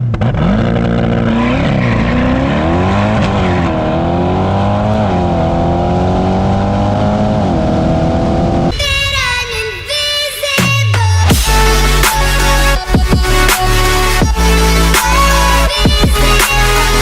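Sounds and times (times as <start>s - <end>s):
car engine accelerating hard: 0.0s - 8.7s.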